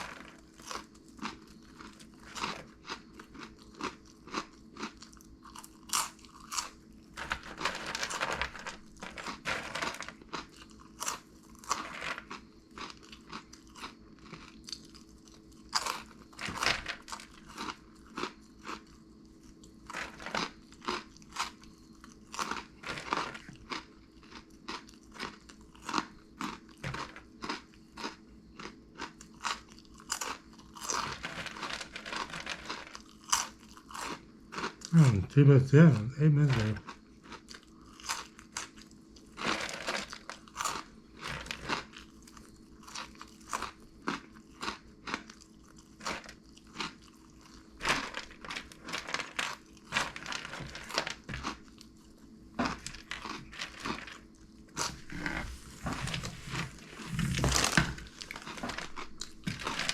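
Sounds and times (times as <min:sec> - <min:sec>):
crunchy snacks being chewed: 0:00.0 - 0:59.9
faint steady hum: 0:00.0 - 0:59.9.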